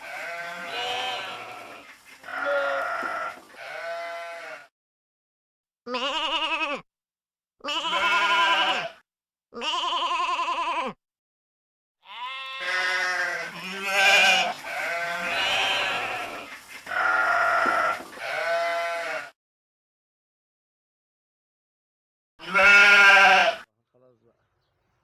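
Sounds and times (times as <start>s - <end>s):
sheep bleating: 0.0s - 4.7s, 5.9s - 6.9s, 7.6s - 9.0s, 9.6s - 11.0s, 12.0s - 19.4s, 22.4s - 23.7s.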